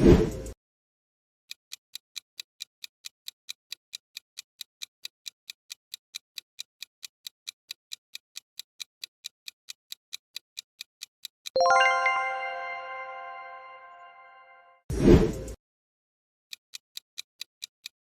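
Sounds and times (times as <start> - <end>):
clock ticking: 1.6 - 13.7, 16.7 - 18.0.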